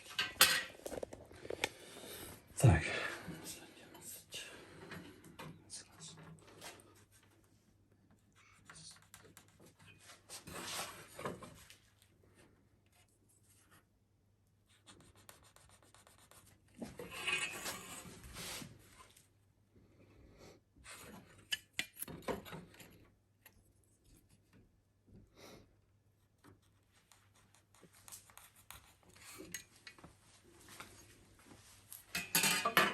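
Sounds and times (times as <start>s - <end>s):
rubbing and scraping on wood: 9.0s - 11.6s, 15.1s - 19.1s.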